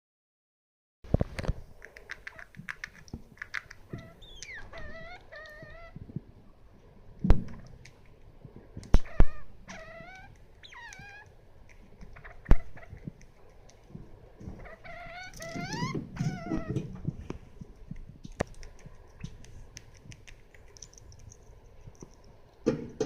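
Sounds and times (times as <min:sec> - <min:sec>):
rodent squeaking: 0:01.8 - 0:06.0, 0:08.8 - 0:22.8.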